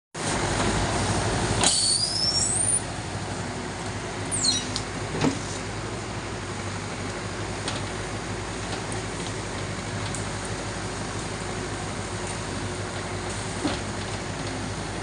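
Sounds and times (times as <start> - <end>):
loading machine engine running: 0.2 - 15.0
high rising squeals: 1.7 - 2.9, 4.3 - 4.8.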